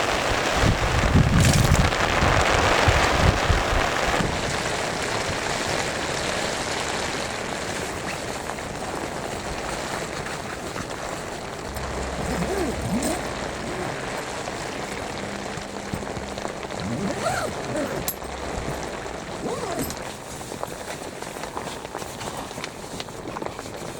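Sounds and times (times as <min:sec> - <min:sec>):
steady rain falling: 0:00.0 - 0:23.9
low rumble: 0:11.6 - 0:20.4.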